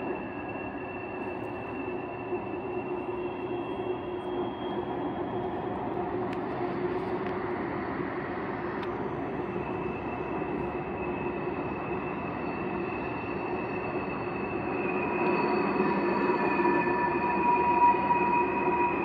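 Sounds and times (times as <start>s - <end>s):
distant freight train rumble: 0.0s - 19.0s.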